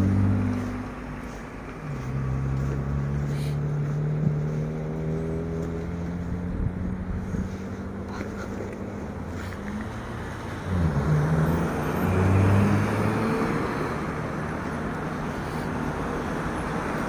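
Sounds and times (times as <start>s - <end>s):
car engine running: 0.0s - 11.4s
passing vehicle: 0.0s - 17.0s.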